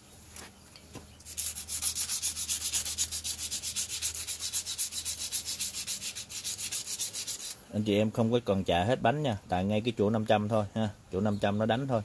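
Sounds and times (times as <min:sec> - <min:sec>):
sandpaper scrubbing metal: 0:01.2 - 0:07.6.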